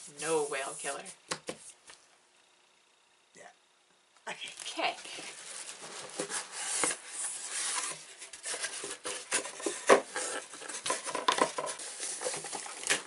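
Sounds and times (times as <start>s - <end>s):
packaging and paper rustling: 4.5s - 13.0s.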